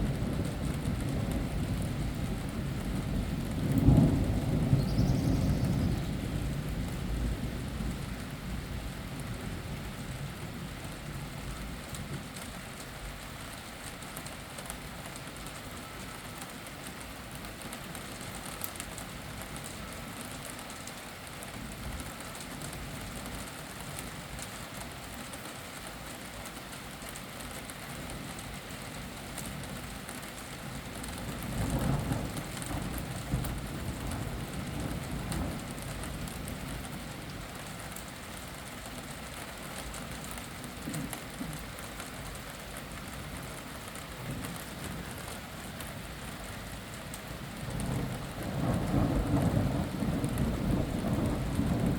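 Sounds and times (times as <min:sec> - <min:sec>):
thunder rumbling: 0:00.0 - 0:08.1, 0:31.2 - 0:37.4, 0:43.3 - 0:51.9
rain pattering: 0:00.0 - 0:51.9.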